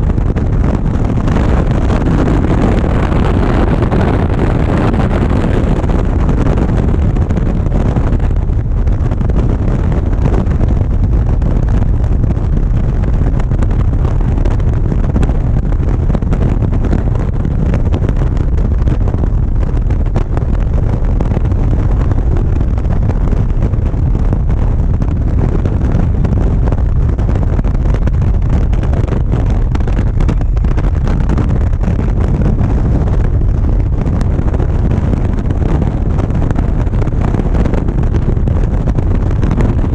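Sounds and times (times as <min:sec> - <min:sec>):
wind rushing over microphone: 0:00.0 - 0:39.9
motorcycle engine: 0:26.0 - 0:37.5.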